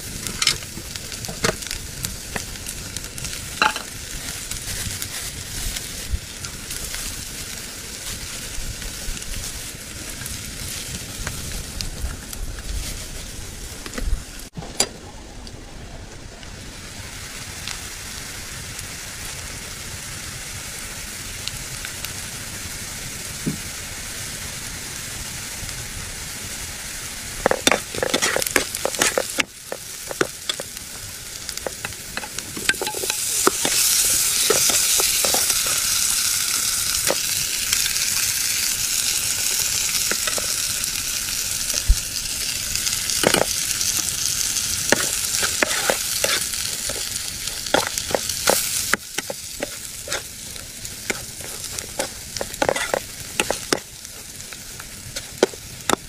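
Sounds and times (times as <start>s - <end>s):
potatoes sizzling in hot oil: 0.0s - 14.5s, 16.7s - 56.0s
ladle scraping metal pan: 51.1s - 53.8s.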